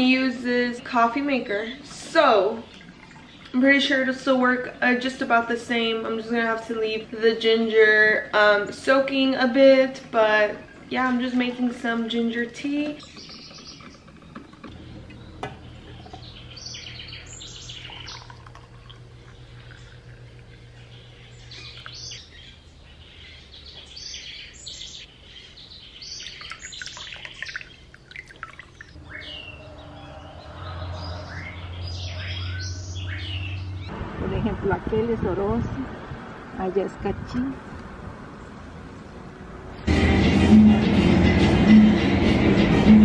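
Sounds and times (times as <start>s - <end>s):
birds chirping: 0.0s - 34.0s
low steady hum: 13.9s - 23.7s.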